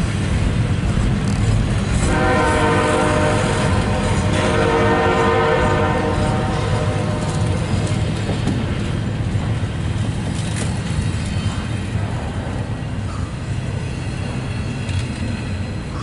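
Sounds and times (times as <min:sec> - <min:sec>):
steel wheels rumbling on rail: 0:00.0 - 0:16.0.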